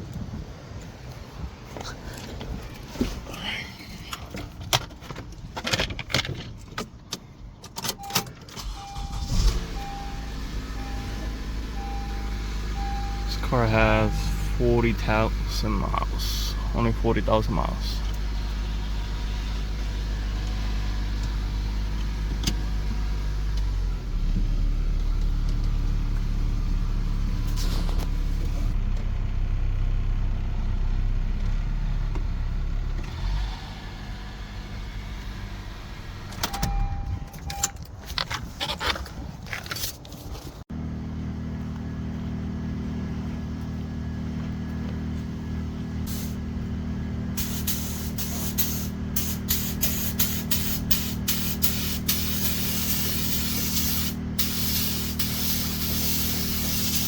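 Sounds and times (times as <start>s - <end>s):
car engine idling: 0.0s - 38.5s, 40.7s - 57.0s.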